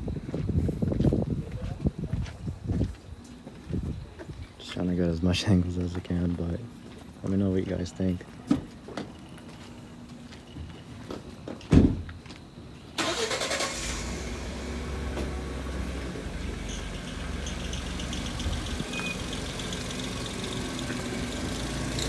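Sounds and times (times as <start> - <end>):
car engine starting and idling: 13.0 - 22.0.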